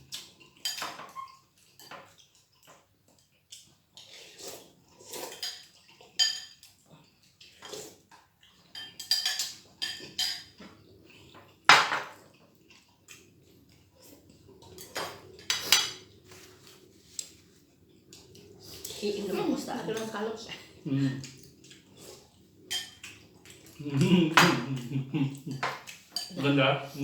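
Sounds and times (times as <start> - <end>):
cutlery clinking on plates: 0.1 - 3.3, 5.1 - 6.8, 8.5 - 12.2, 14.7 - 16.1, 22.7 - 23.7, 25.5 - 26.4.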